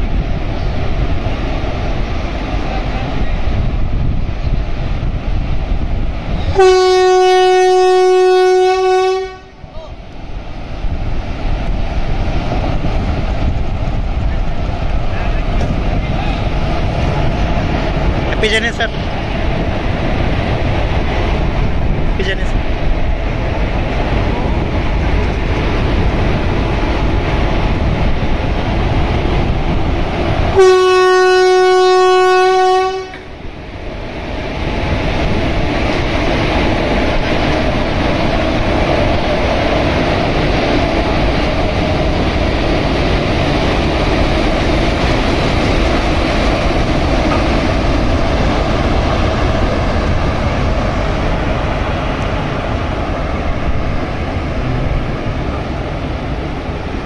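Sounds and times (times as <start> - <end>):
train rumbling and clattering: 0.0 - 57.0
locomotive horn blast: 6.5 - 9.6, 30.5 - 33.3.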